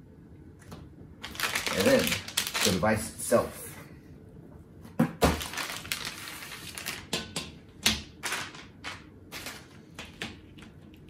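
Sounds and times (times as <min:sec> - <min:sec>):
plastic packaging clacks and crinkles: 0:01.2 - 0:03.1, 0:05.2 - 0:10.8.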